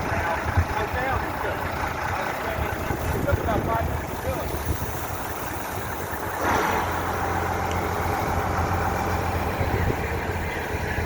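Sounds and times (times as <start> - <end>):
fire engine motor running: 0.0 - 11.0.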